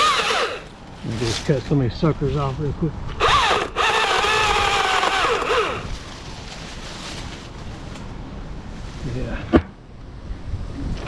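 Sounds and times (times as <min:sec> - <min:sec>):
chainsaw revving and cutting: 0:00.0 - 0:00.7, 0:03.2 - 0:05.9.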